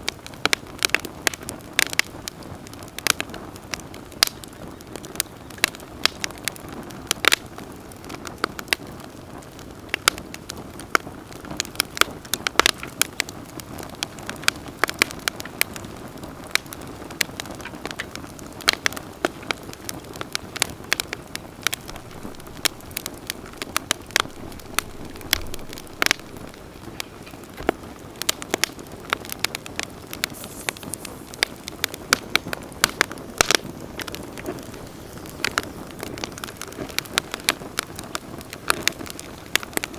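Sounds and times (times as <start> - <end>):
campfire crackling and popping: 0.0 - 39.9
low hiss of burning: 0.0 - 39.9.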